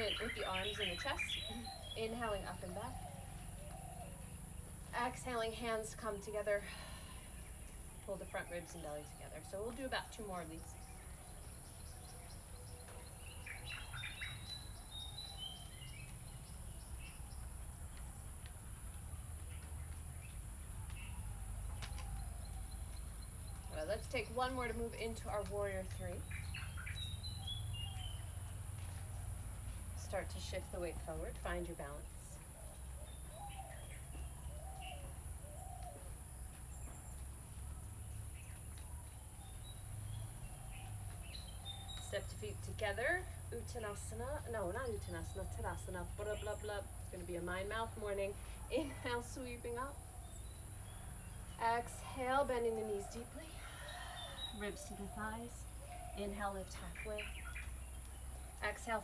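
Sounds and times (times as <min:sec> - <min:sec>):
small bird chirps: 0:00.0 - 0:04.4, 0:19.5 - 0:29.0
birds chirping: 0:00.0 - 0:59.0.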